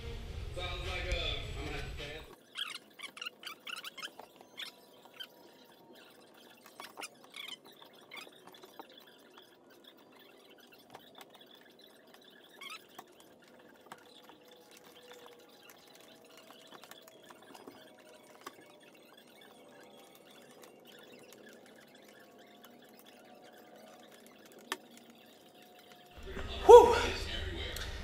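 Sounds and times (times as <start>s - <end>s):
metal squeaking on metal: 2.4s - 27.3s.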